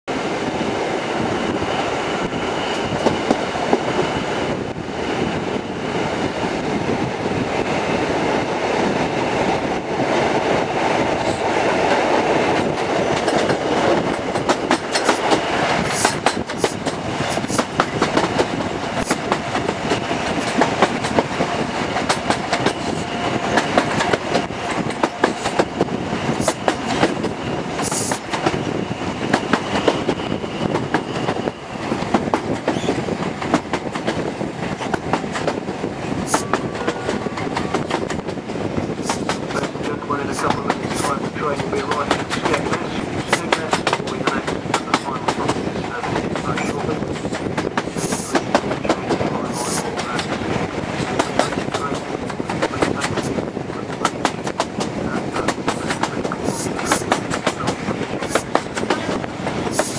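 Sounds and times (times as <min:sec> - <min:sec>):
wind and wheels on rail: 0:00.0 - 0:59.9.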